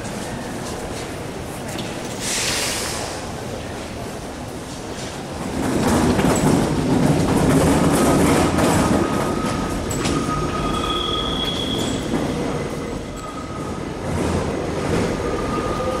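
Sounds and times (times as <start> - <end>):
train rumbling: 0.0 - 16.0
high-pitched wheel squeal: 9.3 - 13.6.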